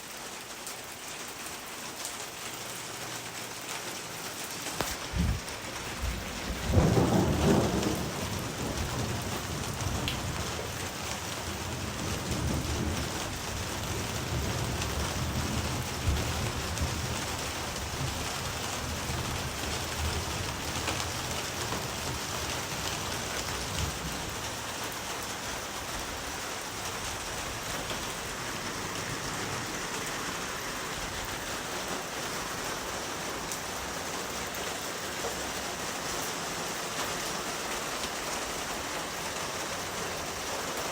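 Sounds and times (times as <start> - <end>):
steady rain falling: 0.0 - 40.9
low rumble of thunder: 4.9 - 32.9.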